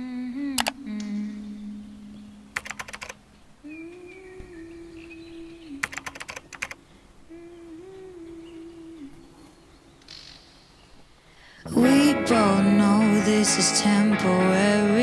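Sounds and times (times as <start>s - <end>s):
keyboard typing clicks: 0.6s - 0.8s, 2.6s - 3.2s, 5.8s - 6.8s.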